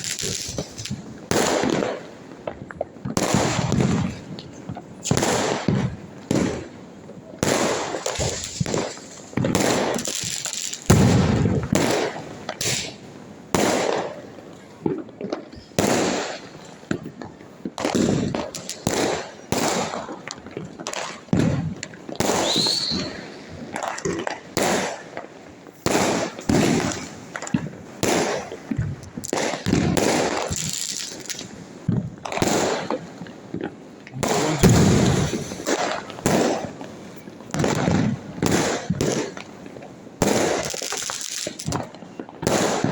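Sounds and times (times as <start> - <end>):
firecrackers banging: 0.0 - 42.9
rising firework whistle: 22.3 - 23.5.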